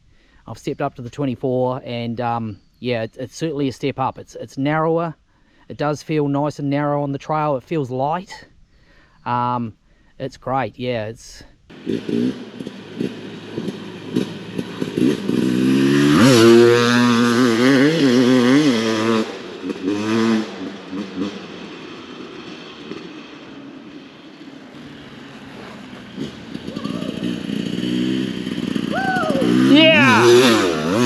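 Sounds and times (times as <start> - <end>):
dirt bike engine revving: 11.7 - 31.0.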